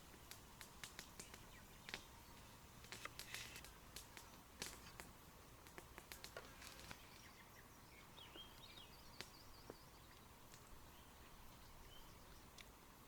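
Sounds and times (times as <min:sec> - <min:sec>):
faint clicks: 0:00.2 - 0:02.1, 0:02.8 - 0:07.3.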